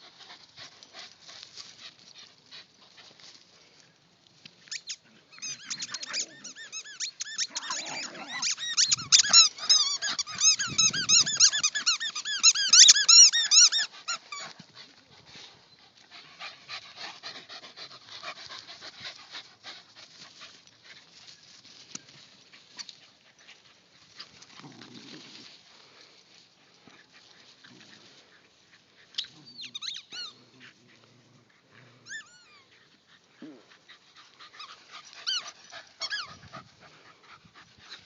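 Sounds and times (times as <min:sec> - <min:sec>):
squeaky toy squeaking: 0:04.7 - 0:14.4, 0:29.6 - 0:30.4, 0:36.0 - 0:36.3.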